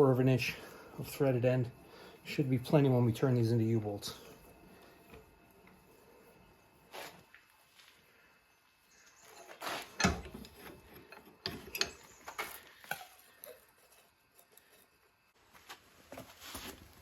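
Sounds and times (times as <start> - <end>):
metal tools clinking and scraping: 9.1 - 14.9.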